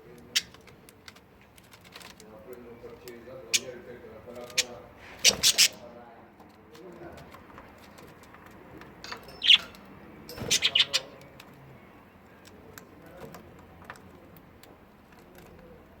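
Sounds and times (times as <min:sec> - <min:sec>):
budgerigar chirping: 0:03.5 - 0:03.8, 0:04.5 - 0:05.8, 0:09.4 - 0:09.7, 0:10.4 - 0:11.2.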